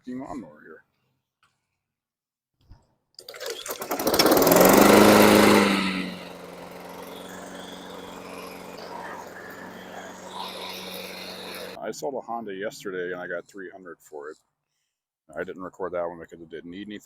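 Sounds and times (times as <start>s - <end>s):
lawn mower engine starting and running: 3.2s - 11.8s.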